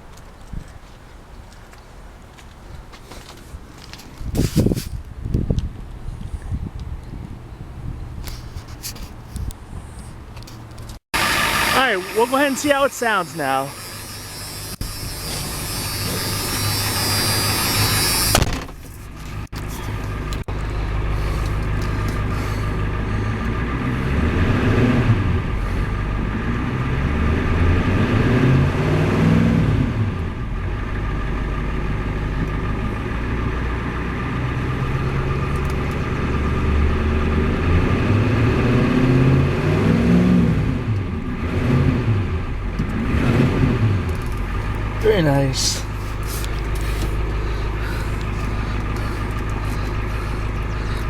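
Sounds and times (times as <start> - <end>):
diesel engine revving and idling: 9.8 - 51.0
high buzz: 11.2 - 18.6.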